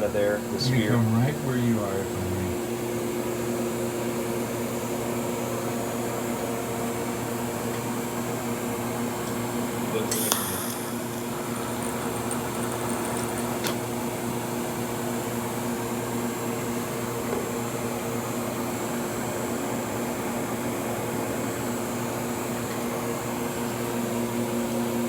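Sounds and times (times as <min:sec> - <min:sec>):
steady machine hum: 0:09.7 - 0:14.3.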